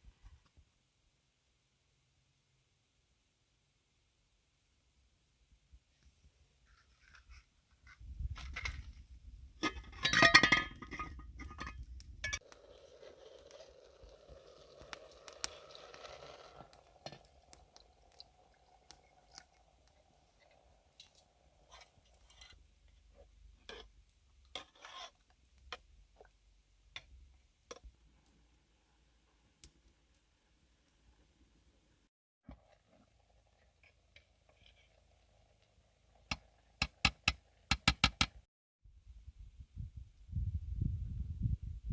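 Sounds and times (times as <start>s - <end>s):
dishes and utensils clinking: 9.6s - 12.4s.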